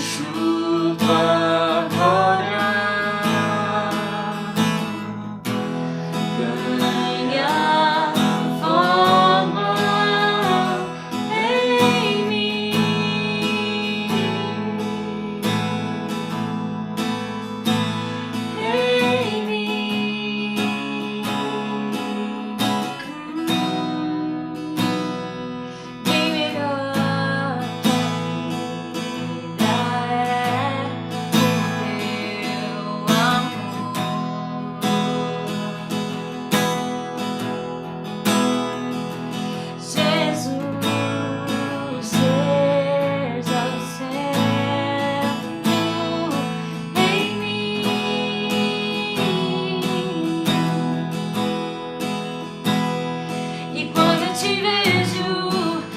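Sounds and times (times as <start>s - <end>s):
person singing: 0.0s - 5.4s, 6.0s - 15.5s, 18.4s - 35.8s, 39.4s - 51.4s, 53.4s - 55.9s
acoustic guitar strumming: 0.0s - 55.9s.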